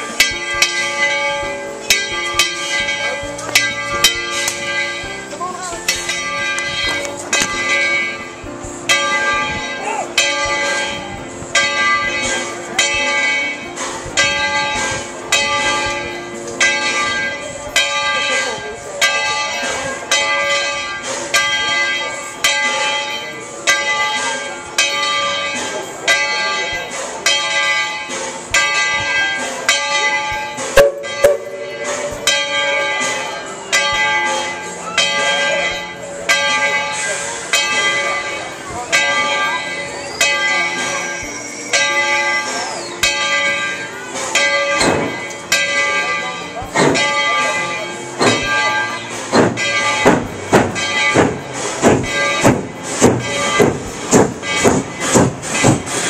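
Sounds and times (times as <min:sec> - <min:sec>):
bell ringing: 0:00.0 - 0:56.0
steam locomotive exhaust chuffs: 0:30.4 - 0:34.4, 0:48.2 - 0:56.0.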